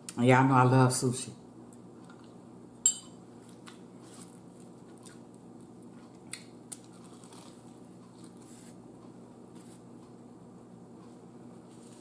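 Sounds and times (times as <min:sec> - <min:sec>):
faint chewing: 0:03.4 - 0:10.2.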